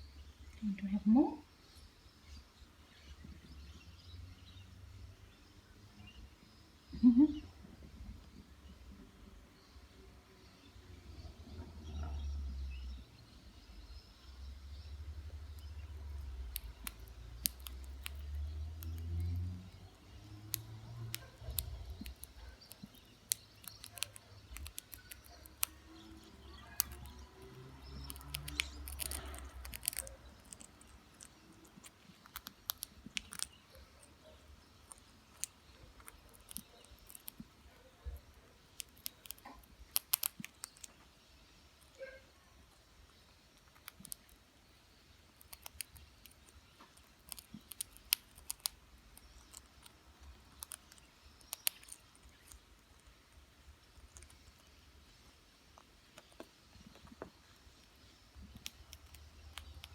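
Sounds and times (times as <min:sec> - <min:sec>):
parrot crunching chip: 0:15.6 - 0:37.5, 0:38.6 - 0:41.0, 0:43.5 - 0:44.4, 0:45.3 - 0:54.8.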